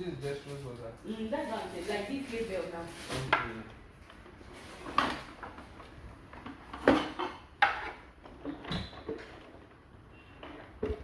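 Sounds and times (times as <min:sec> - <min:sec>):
hard objects knocking and clattering: 0:03.3 - 0:11.0.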